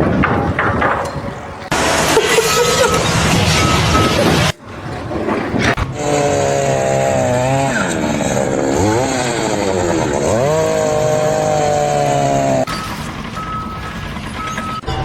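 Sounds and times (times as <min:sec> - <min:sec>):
small engine running at high speed: 0:06.0 - 0:12.7.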